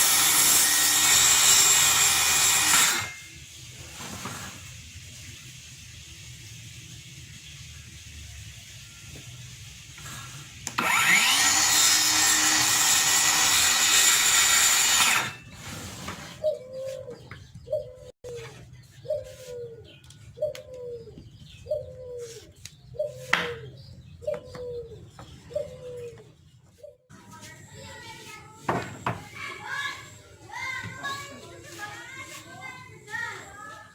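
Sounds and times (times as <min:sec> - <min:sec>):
circular saw motor whining: 0:00.0 - 0:03.5, 0:10.0 - 0:15.7.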